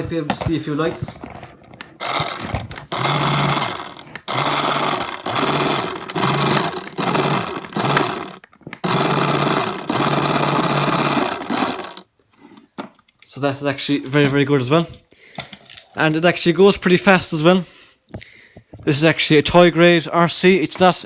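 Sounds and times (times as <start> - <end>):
toy car motor whirring: 2.0 - 12.1.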